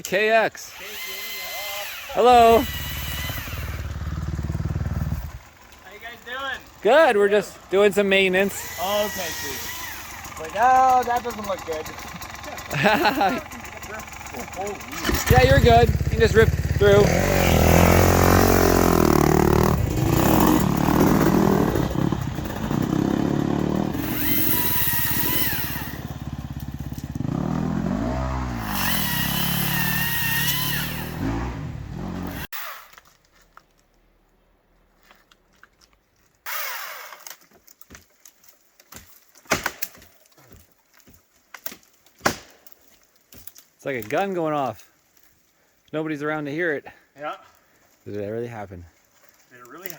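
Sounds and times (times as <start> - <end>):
dirt bike engines revving: 0.0 - 32.5.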